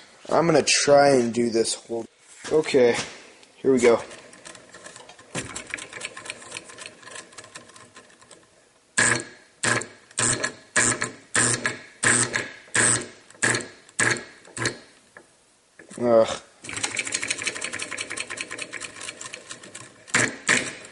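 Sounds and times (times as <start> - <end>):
solenoid engine clicking and buzzing: 4.1 - 16.0, 16.6 - 20.9.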